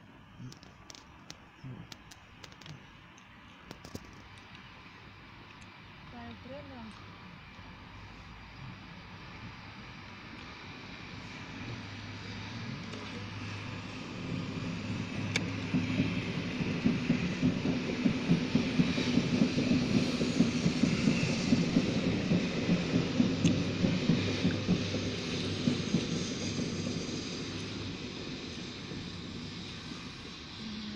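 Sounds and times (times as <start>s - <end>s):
passing train hum: 0.0s - 30.9s
wheels clattering on track: 12.9s - 29.6s.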